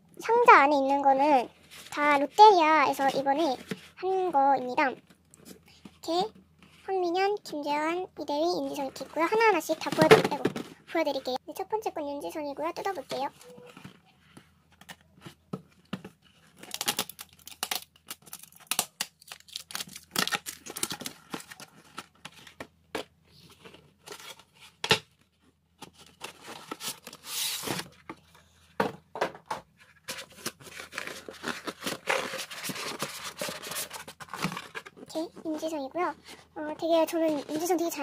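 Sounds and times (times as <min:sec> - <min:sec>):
wrapping paper tearing and crinkling: 0:16.4 - 0:22.5, 0:30.0 - 0:35.2.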